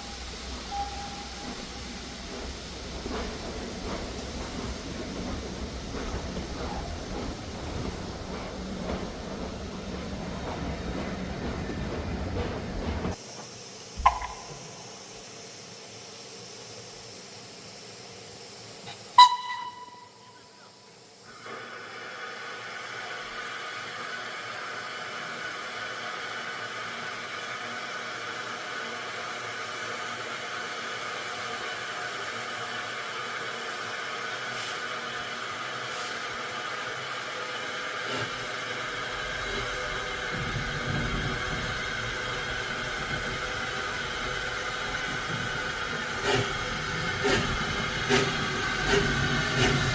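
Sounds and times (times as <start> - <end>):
steam locomotive whistle: 0.0 - 2.2, 14.0 - 15.0, 19.1 - 20.8
steam hissing: 0.0 - 11.9, 13.1 - 49.9.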